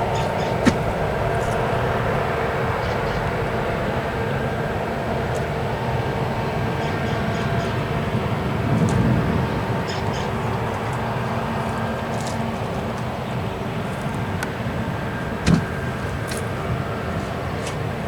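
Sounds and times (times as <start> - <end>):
engine droning steadily: 0.0 - 18.0.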